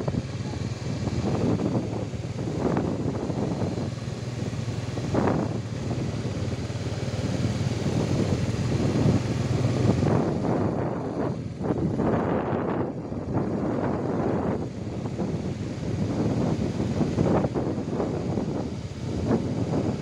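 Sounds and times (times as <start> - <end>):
steady low drone: 0.0 - 9.1
wind buffeting microphone: 0.0 - 20.0.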